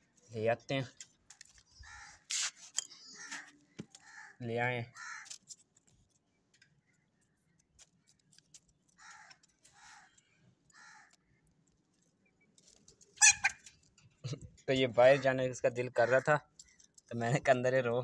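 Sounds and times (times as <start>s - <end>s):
birds squawking: 1.7s - 5.4s, 13.2s - 13.7s, 15.0s - 16.8s.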